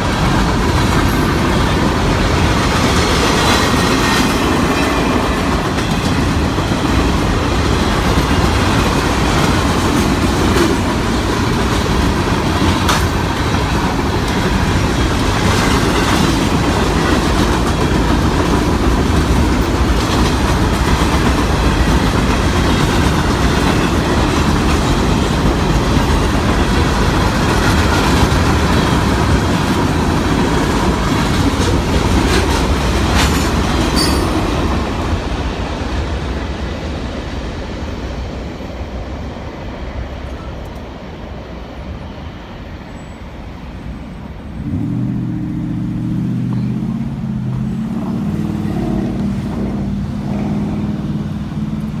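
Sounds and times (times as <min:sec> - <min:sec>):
train wheels clattering over rails: 0:00.0 - 0:39.4.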